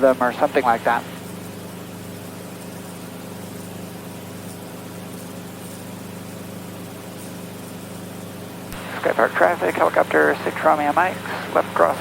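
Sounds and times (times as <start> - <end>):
helicopter engine and rotors droning: 0.0 - 12.0.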